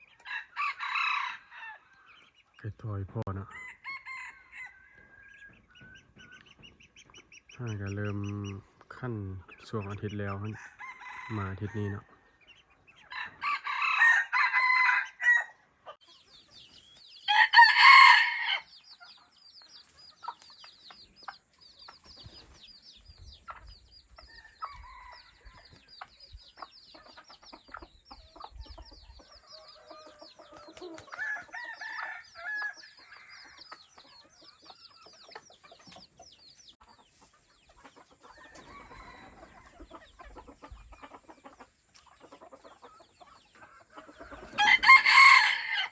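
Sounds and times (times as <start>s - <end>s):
chicken clucking: 0.0s - 45.9s
rooster crowing: 0.2s - 1.8s, 3.5s - 5.2s, 10.6s - 12.0s, 13.1s - 15.6s, 17.3s - 18.7s, 38.4s - 39.7s, 44.5s - 45.9s.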